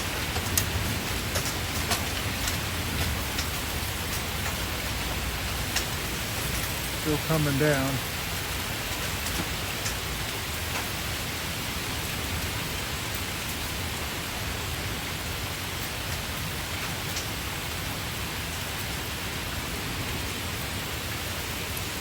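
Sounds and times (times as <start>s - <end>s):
hailstones pelting down: 0.0s - 22.0s
single hailstones ticking: 0.2s - 6.0s.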